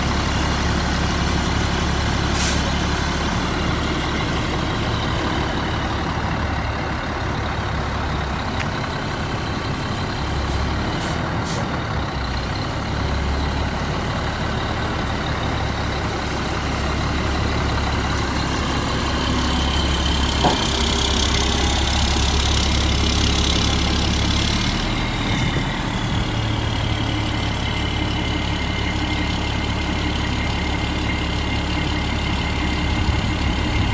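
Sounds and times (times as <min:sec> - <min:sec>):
diesel truck engine idling: 0:00.0 - 0:33.9
loud hiss: 0:02.3 - 0:02.7.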